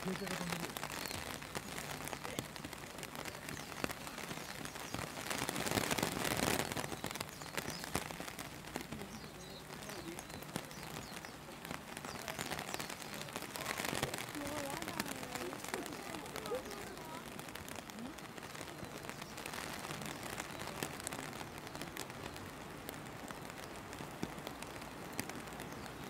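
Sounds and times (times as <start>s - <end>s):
steady rain with ticking drops: 0.0s - 26.0s.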